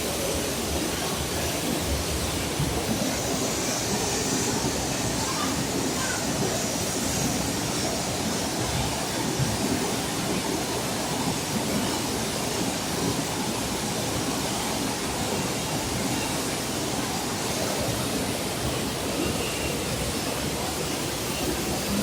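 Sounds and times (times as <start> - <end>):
floodwater rushing: 0.0 - 22.0.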